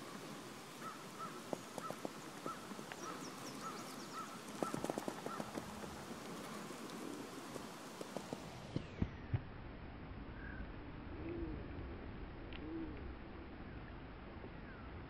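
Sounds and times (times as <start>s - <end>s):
bird calling nasal notes: 0.7s - 5.7s.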